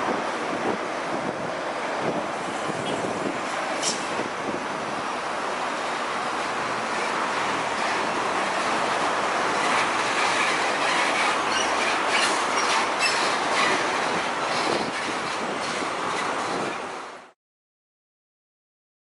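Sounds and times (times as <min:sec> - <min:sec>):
heavy trucks passing: 0:00.0 - 0:17.4
faint high squeaks: 0:10.4 - 0:13.8.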